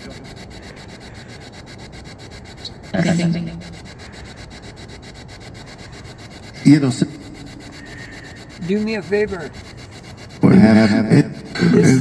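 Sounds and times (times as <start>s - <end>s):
radio static hiss: 0.0s - 12.0s
rapid regular ticking: 0.0s - 12.0s
voice-like fragment: 10.4s - 12.0s.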